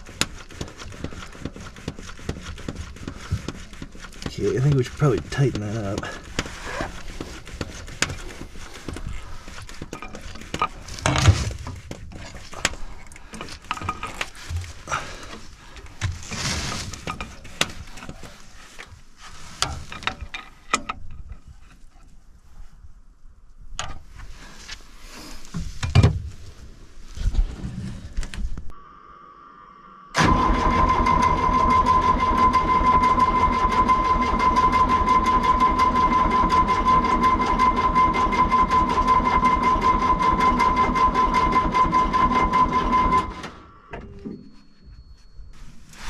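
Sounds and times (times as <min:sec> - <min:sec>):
machine with pitched whine: 0:28.7 - 0:45.6.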